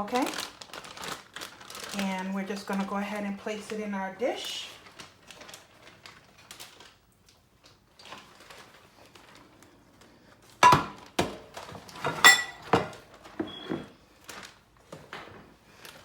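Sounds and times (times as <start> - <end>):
dishes knocking and clinking: 10.6 - 13.8.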